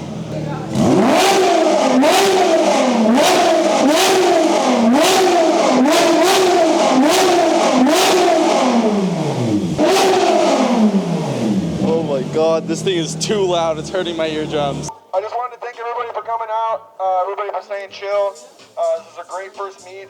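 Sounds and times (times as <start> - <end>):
car engine revving: 0.0 - 14.9
exhaust cracks: 0.0 - 14.9.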